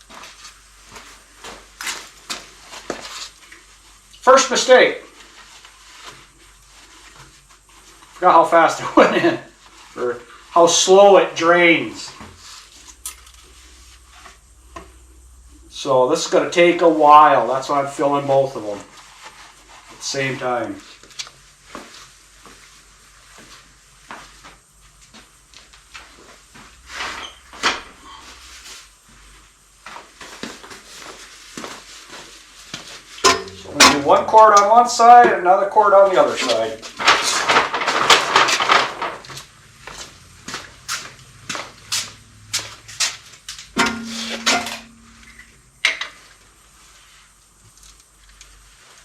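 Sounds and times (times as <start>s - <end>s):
sharp knock: 33.3s - 34.0s, 43.8s - 45.3s
short steady tone: 43.8s - 45.6s.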